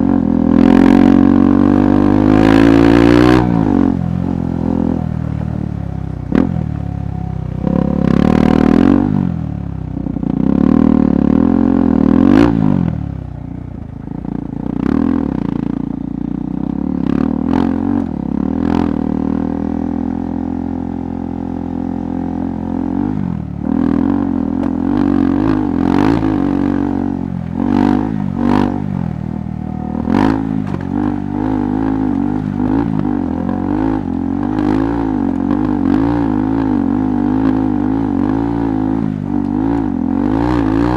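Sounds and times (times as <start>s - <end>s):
knocks and clatter over rough ground: 30.0s - 36.8s.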